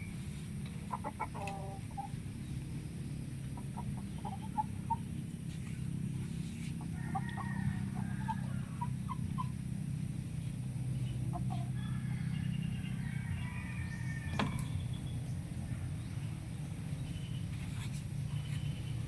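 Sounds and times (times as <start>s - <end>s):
chickens clucking: 0.3s - 2.2s, 3.4s - 16.6s.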